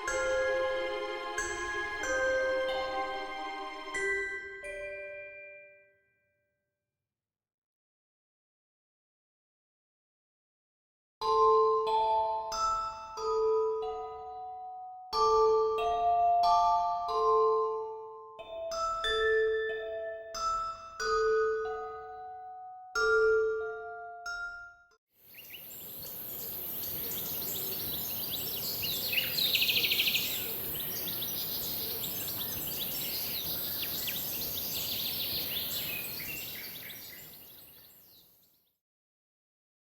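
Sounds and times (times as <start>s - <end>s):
mallet percussion music: 0.0s - 5.6s
gentle mallet percussion music: 0.0s - 6.0s, 11.2s - 24.9s, 25.8s - 37.4s
bird chirps and trill: 25.3s - 38.6s
steady high hiss: 25.4s - 37.2s.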